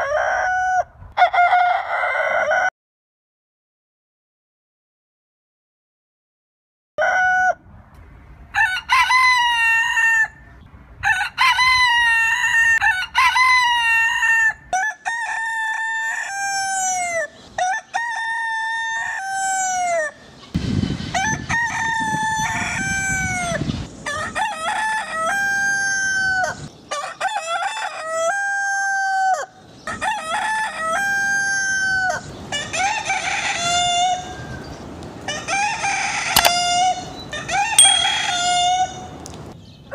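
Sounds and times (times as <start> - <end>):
roosters crowing: 0.0 - 2.7, 8.5 - 10.4, 11.0 - 20.2.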